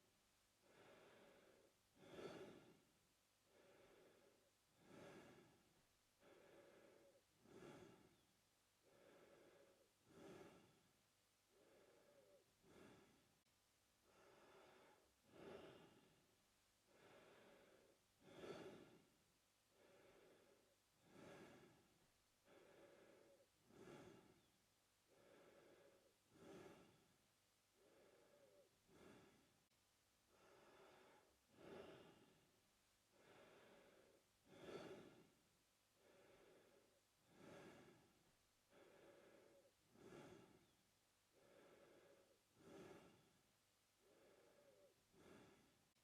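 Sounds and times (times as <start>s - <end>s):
man breathing through mouth: 3.5s - 8.2s, 8.8s - 10.9s, 11.5s - 13.2s, 16.9s - 19.1s, 19.7s - 24.5s, 25.1s - 27.1s, 27.8s - 29.5s, 30.3s - 32.4s, 33.1s - 35.4s, 36.0s - 43.4s, 44.0s - 45.8s.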